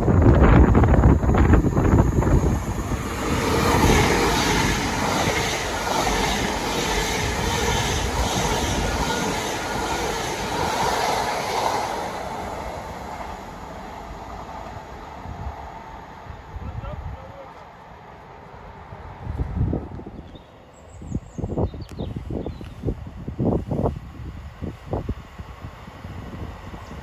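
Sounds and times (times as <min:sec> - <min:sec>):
wind buffeting microphone: 0:00.0 - 0:17.4, 0:18.8 - 0:27.0
train passing: 0:00.0 - 0:27.0.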